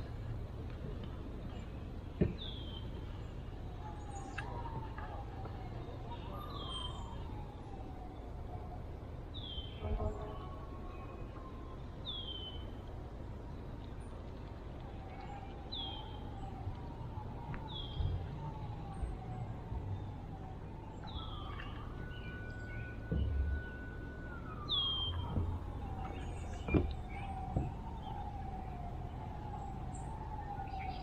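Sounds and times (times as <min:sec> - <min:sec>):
distant siren wailing: 0:00.0 - 0:31.0
bird call: 0:21.0 - 0:28.2
low thumps: 0:23.0 - 0:23.9, 0:25.1 - 0:28.4.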